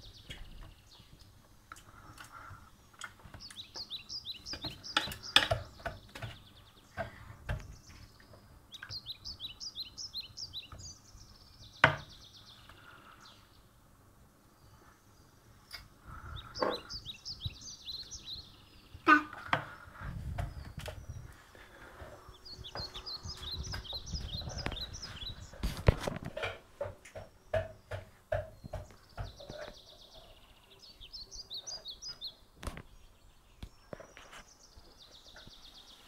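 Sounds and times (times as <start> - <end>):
bird chirping: 0.0 - 13.8, 14.4 - 36.0
sharp knocks: 25.9 - 29.6.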